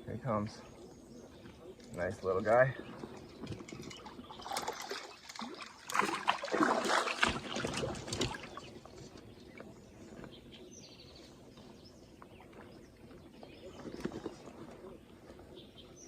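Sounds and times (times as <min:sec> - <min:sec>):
water splashing and sloshing: 0:01.2 - 0:10.6.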